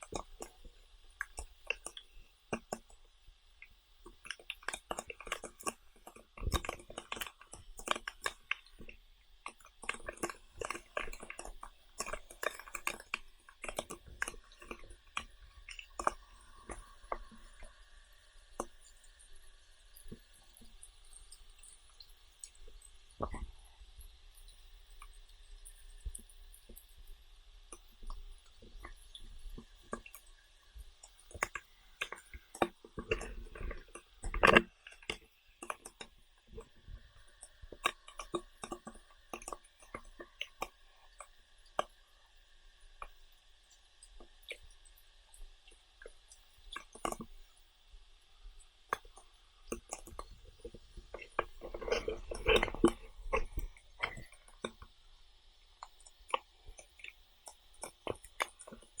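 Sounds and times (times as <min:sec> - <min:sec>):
person chewing: 0:00.0 - 0:02.9, 0:04.1 - 0:17.4, 0:31.0 - 0:36.8, 0:37.4 - 0:41.9, 0:46.7 - 0:47.3, 0:48.9 - 0:54.9, 0:55.8 - 0:59.0.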